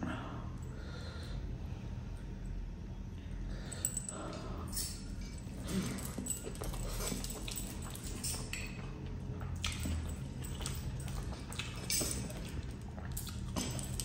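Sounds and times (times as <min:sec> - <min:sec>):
wet chewing and lip smacks: 0:09.5 - 0:13.7.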